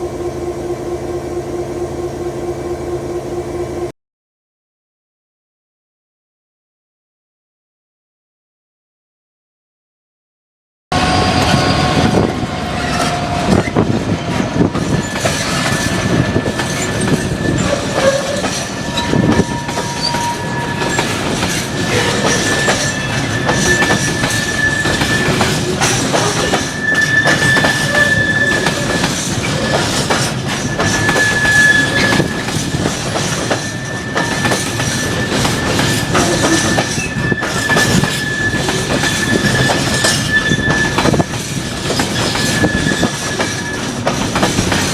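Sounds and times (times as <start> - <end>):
train running on track: 0.0 - 3.9, 10.9 - 44.9
high wheel squeal: 11.0 - 44.9
wheels clicking over rail joints: 12.8 - 44.9.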